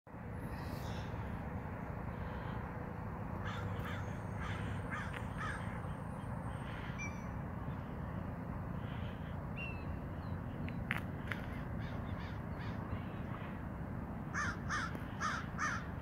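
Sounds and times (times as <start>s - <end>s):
low background rumble: 0.1s - 16.0s
bird calling: 3.4s - 7.9s.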